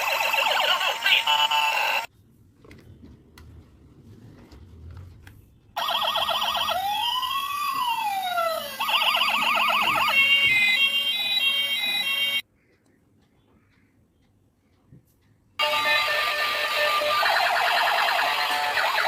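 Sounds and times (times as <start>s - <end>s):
toy police car siren: 0.0s - 2.1s, 5.8s - 12.4s, 15.6s - 19.0s.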